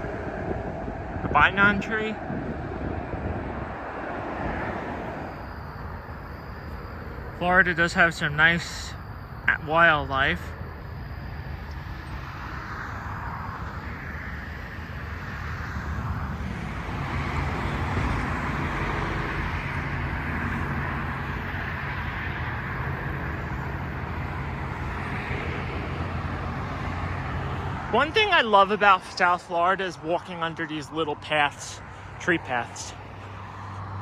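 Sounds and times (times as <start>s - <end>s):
low engine rumble: 0.0s - 29.6s.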